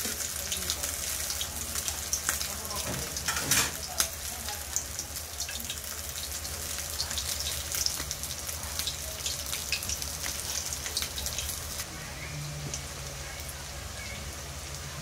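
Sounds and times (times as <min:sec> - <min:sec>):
oil crackles and pops: 0:00.0 - 0:11.9
food frying in hot oil: 0:00.0 - 0:15.0.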